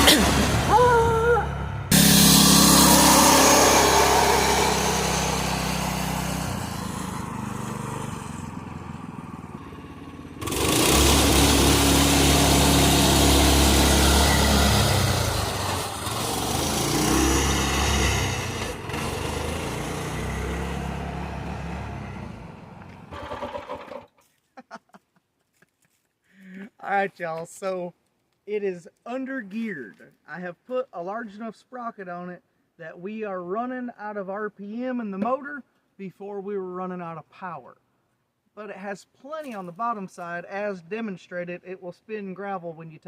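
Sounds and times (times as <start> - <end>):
small engine running: 1.9 - 24.1.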